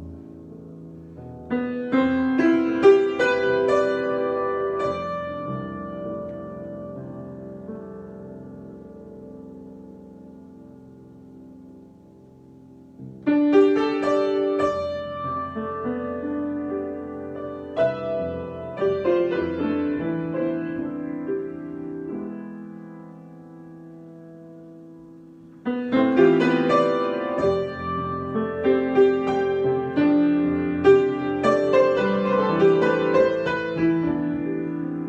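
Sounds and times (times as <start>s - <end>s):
solo piano playing chords: 0.0s - 35.0s.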